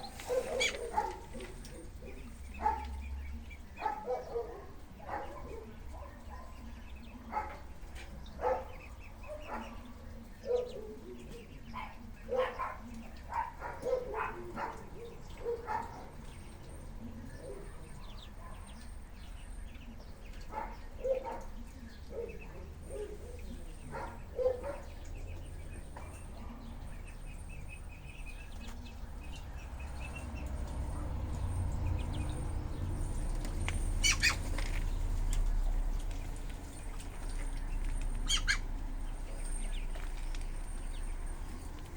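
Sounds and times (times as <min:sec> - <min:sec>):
ducks calling: 0:00.0 - 0:04.5, 0:28.2 - 0:40.2.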